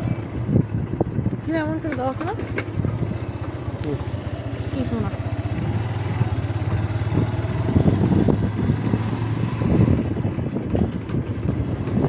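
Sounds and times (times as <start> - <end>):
low buffeting: 0.0 - 12.0
motorcycle engine running: 0.0 - 12.0.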